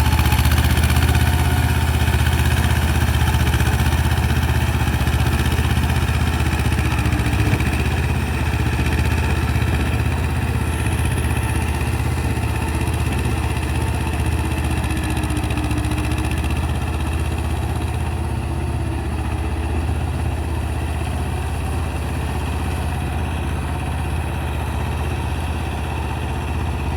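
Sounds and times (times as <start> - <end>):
tractor diesel engine running: 0.0 - 26.9.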